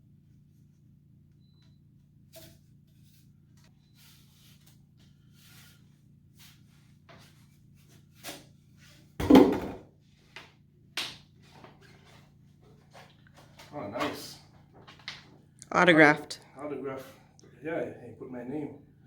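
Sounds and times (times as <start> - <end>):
paper rustling and scraping: 2.3 - 9.2, 11.3 - 15.4.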